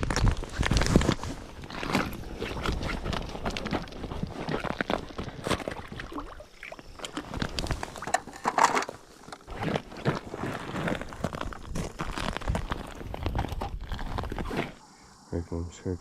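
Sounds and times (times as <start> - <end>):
gear handling clicks and rustling: 7.4 - 9.5.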